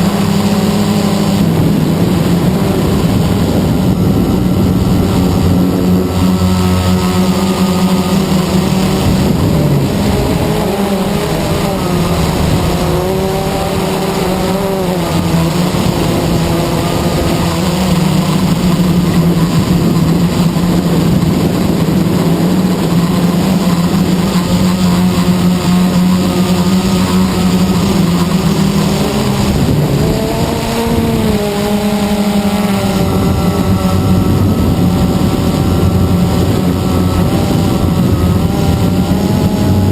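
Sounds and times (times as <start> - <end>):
quadcopter propellers droning: 0.0 - 39.9.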